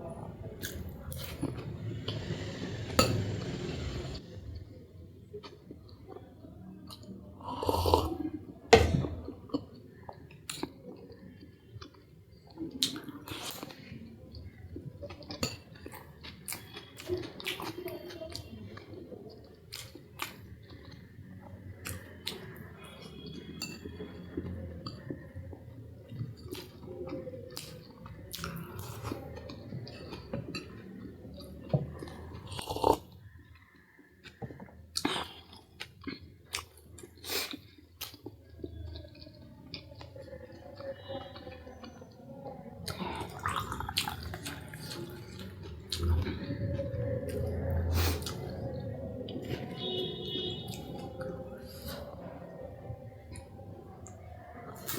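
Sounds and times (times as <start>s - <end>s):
person chewing food: 0.6s - 4.7s, 9.1s - 54.9s
wet mouth clicks: 47.2s - 52.2s.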